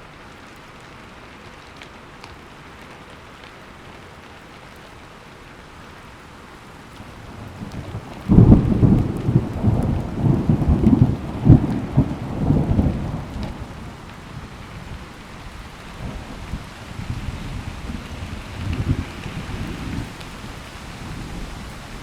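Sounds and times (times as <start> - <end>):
steady rain: 0.0 - 22.0
thunder clap rumbling: 7.3 - 22.0.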